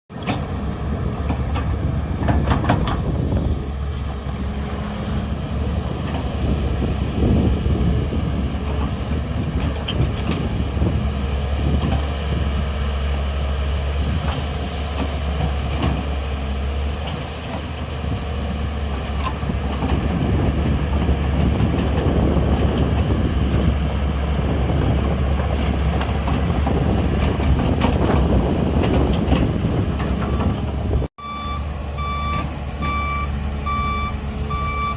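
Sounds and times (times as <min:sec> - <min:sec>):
heavy diesel machinery rumbling: 0:00.1 - 0:34.9
knocks and clanks: 0:01.3 - 0:03.2, 0:25.5 - 0:30.8.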